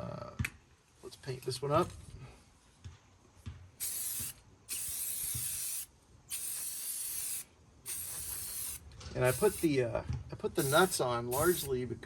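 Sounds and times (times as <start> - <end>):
spray paint can spraying: 3.8 - 9.7, 10.6 - 11.7.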